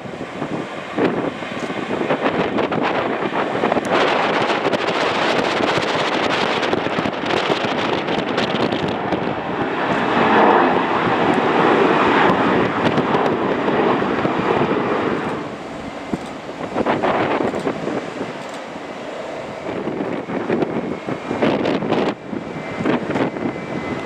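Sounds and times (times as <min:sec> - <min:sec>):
jet airliner noise: 0:00.0 - 0:24.0
wind buffeting microphone: 0:00.0 - 0:24.0.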